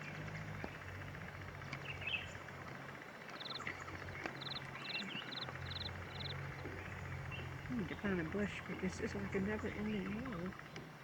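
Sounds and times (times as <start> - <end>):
low steady hum: 0.0 - 10.8
high-pitched chirping trills: 4.4 - 6.4.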